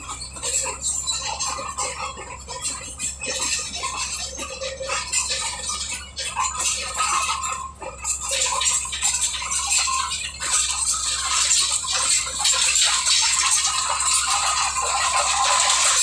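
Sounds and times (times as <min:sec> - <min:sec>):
bulldozer engine drone: 0:00.0 - 0:16.0
steel crawler tracks clattering: 0:00.0 - 0:16.0.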